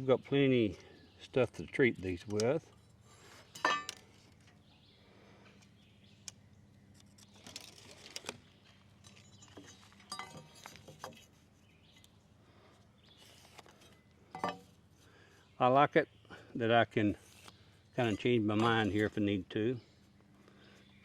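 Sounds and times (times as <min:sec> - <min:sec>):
handling clicks and taps: 0:02.0 - 0:02.6.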